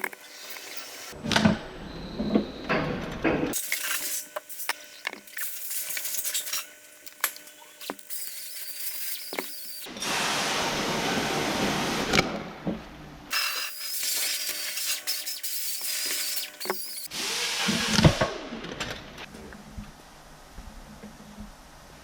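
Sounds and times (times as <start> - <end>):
electric drill running: 0.0 - 1.2, 3.6 - 9.9, 13.3 - 17.4.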